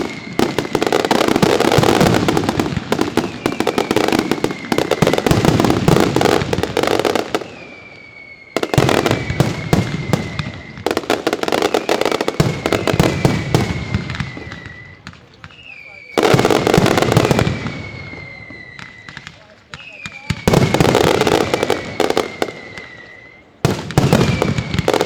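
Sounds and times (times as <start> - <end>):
fireworks crackling bangs: 0.0 - 25.0
high whistling tone gliding down: 7.3 - 11.0, 21.3 - 25.0.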